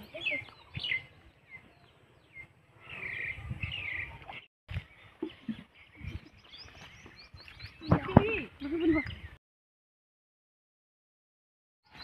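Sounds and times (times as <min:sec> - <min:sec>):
birds chirping: 0:00.0 - 0:09.4.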